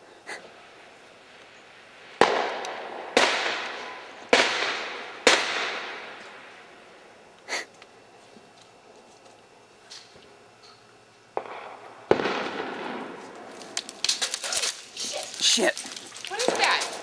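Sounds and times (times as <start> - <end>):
loud echoing bangs: 2.2 - 6.2, 11.4 - 13.4.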